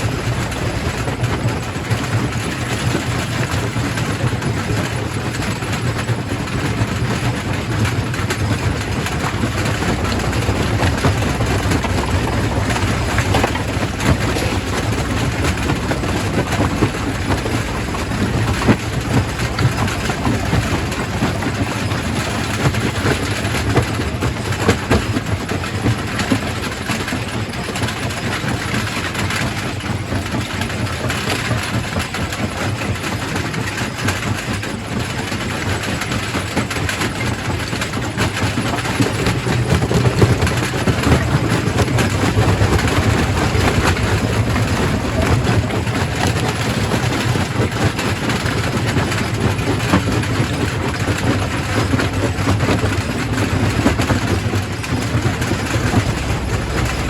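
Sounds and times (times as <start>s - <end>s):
rock crushing clatter: 0.0s - 28.7s
low machine hum: 0.0s - 29.1s, 38.3s - 57.0s.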